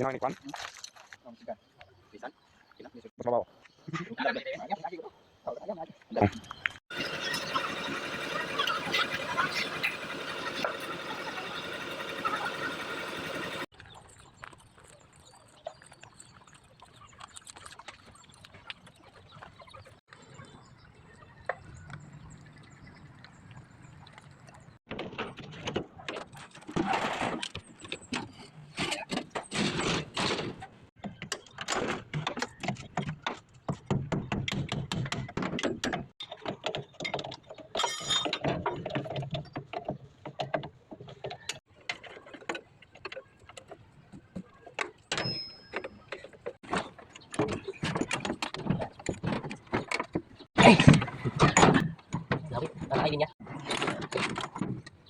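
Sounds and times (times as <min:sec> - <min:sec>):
engine running: 0:06.9 - 0:13.7.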